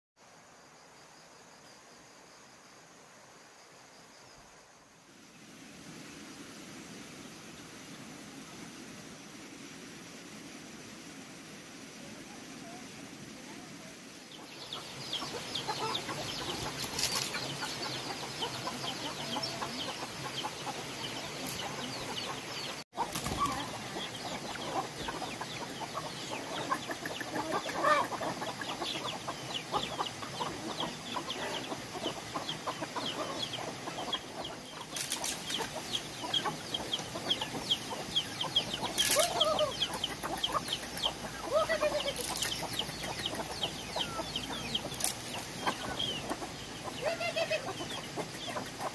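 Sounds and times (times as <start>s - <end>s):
ducklings peeping: 14.6s - 48.9s.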